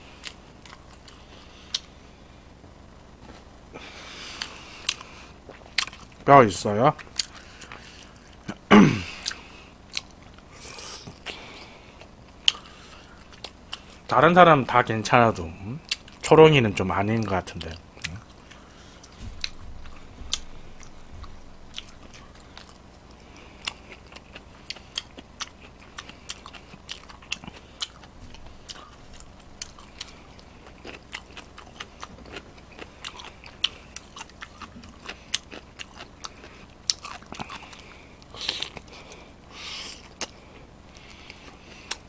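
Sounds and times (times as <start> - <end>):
chewing and biting food: 4.3 - 6.2, 7.0 - 8.6, 9.2 - 14.1, 17.6 - 42.0.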